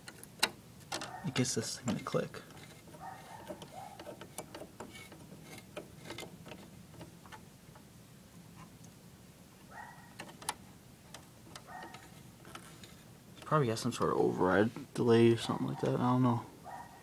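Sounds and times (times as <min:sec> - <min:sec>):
thermostat clicking: 0:00.0 - 0:07.9, 0:10.1 - 0:14.2.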